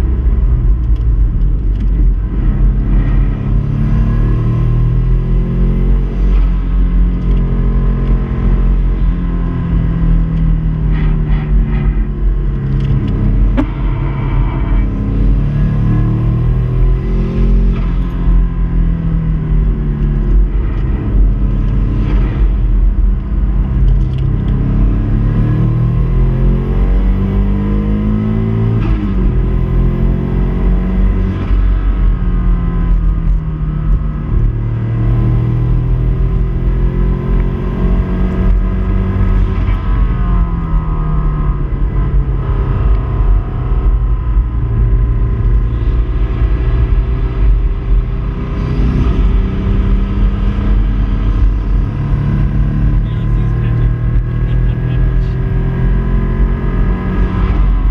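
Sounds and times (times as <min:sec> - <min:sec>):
car engine revving hard: 0:19.5 - 0:57.9.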